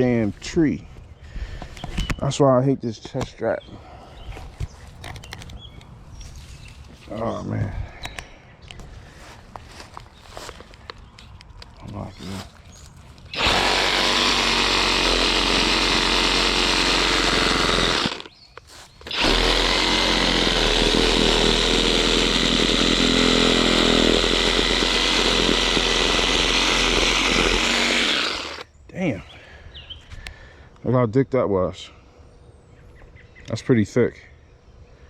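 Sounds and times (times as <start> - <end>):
reciprocating saw cutting branch: 13.3 - 28.6.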